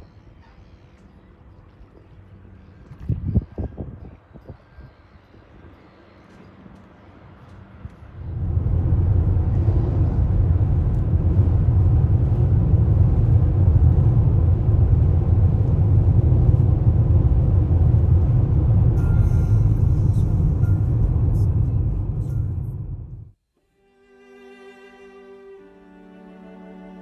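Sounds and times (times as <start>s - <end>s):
car road rumble: 6.7s - 23.4s.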